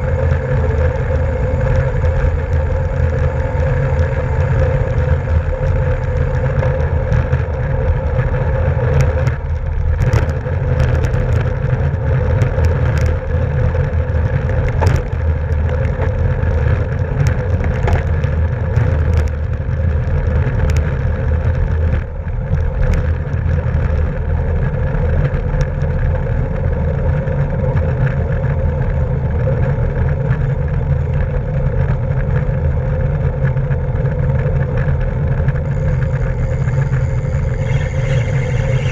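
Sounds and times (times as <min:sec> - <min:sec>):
wind rush and road rumble: 0:00.0 - 0:38.9
sharp clicks and knocks: 0:14.3 - 0:19.5.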